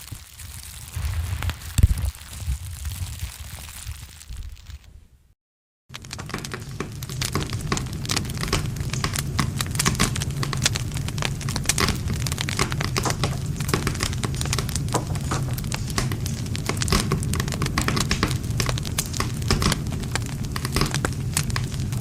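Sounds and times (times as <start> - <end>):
burning wood crackling and popping: 0.0 - 5.0, 5.9 - 22.0
low rumble of flames: 0.0 - 22.0.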